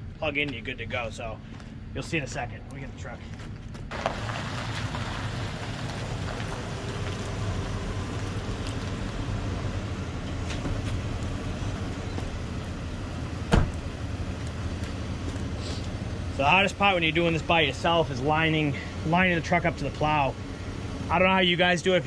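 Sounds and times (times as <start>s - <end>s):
pickup truck engine running: 3.4s - 22.0s
sharp thump: 13.5s - 13.8s.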